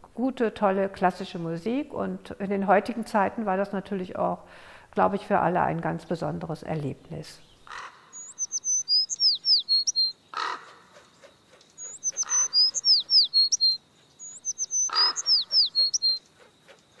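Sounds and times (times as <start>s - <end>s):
songbird singing: 7.1s - 17.0s.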